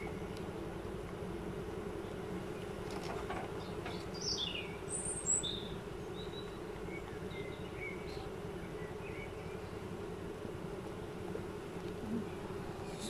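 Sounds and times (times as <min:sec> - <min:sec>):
steady low hum: 0:00.0 - 0:13.0
songbird chirping: 0:03.4 - 0:09.9.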